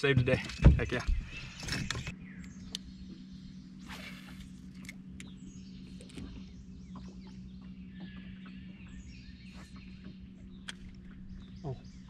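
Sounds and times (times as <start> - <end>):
songbirds chirping: 0.0 - 12.0
steady low hum: 0.0 - 12.0.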